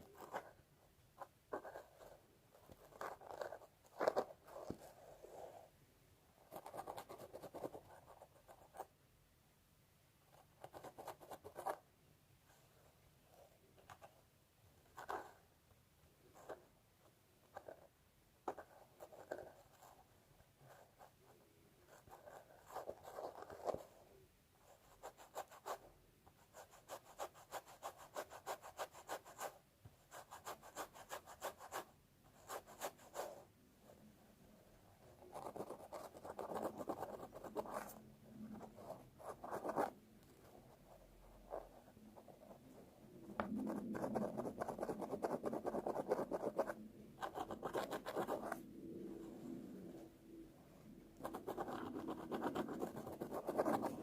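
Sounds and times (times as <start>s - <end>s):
fingernails scratching hair: 51.2s - 54.0s.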